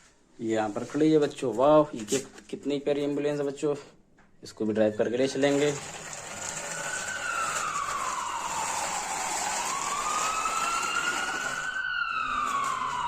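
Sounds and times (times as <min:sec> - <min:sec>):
toy electronic siren wailing: 0:05.6 - 0:13.0.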